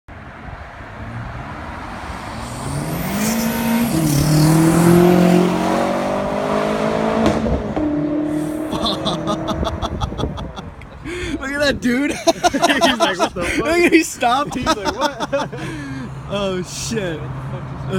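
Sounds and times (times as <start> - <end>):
car engine accelerating hard: 1.1 - 9.9.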